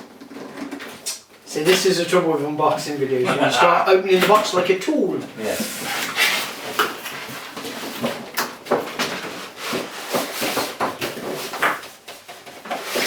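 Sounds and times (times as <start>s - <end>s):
cardboard box scraping and rustling: 5.4s - 8.3s.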